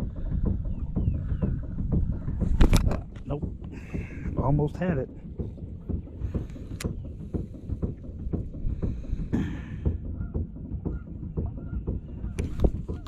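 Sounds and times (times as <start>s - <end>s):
wind gusts on microphone: 0.0s - 7.7s
waves slapping against boat hull: 0.0s - 13.0s.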